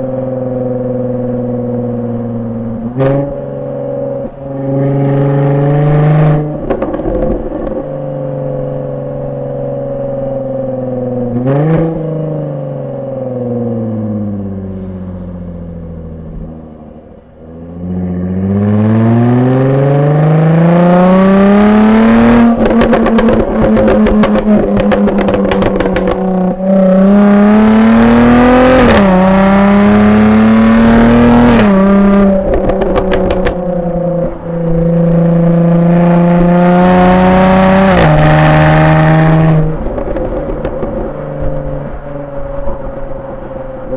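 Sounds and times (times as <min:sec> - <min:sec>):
car engine accelerating: 0:00.0 - 0:43.9
exhaust pops and crackles: 0:06.6 - 0:07.9, 0:22.4 - 0:26.8, 0:31.4 - 0:34.8, 0:39.4 - 0:41.8.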